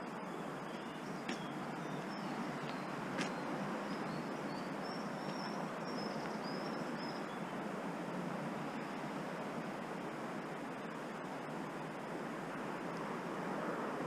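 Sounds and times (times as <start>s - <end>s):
rushing water: 0.0s - 14.0s
bird singing high thin notes: 0.1s - 7.5s.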